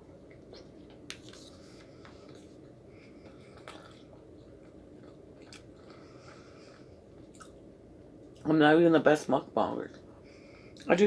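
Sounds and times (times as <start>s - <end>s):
person chewing food: 0.0s - 8.4s
steady low hum: 0.0s - 11.0s.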